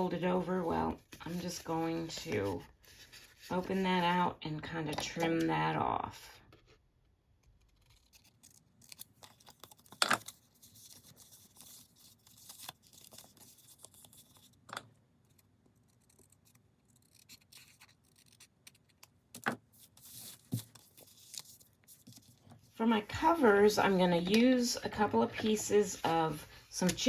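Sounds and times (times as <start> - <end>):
paper rustling: 7.6 - 14.6, 15.8 - 27.0.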